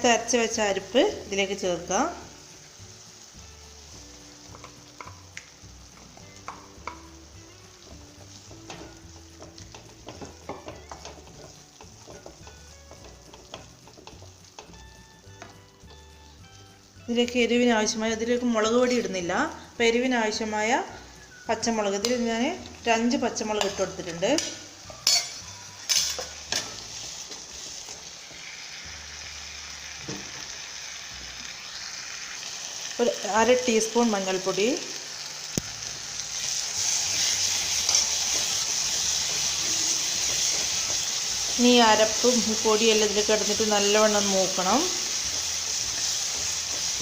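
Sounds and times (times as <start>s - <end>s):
food sizzling in oil: 0.0s - 47.0s
spoon scraping a pan: 8.4s - 14.8s, 23.5s - 28.8s, 36.4s - 47.0s.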